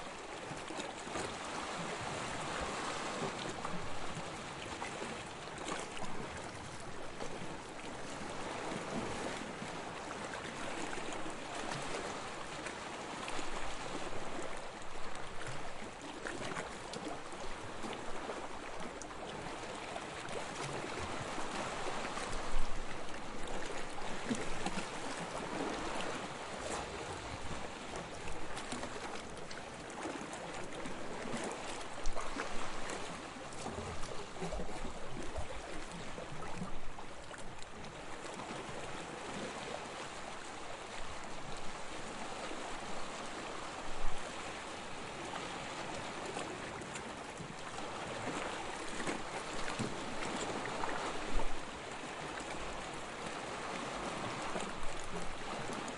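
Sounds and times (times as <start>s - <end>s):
small waves lapping on sand: 0.0s - 55.9s
water splashes: 0.0s - 55.9s.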